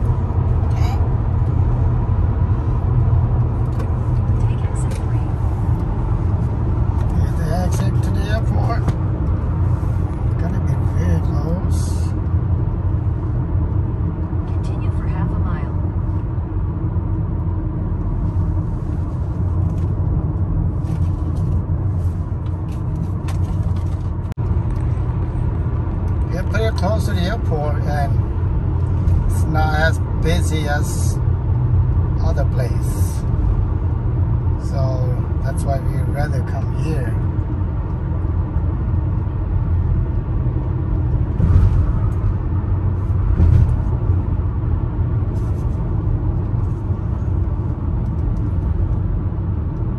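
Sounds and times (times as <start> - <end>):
car cabin road noise: 0.0 - 49.9.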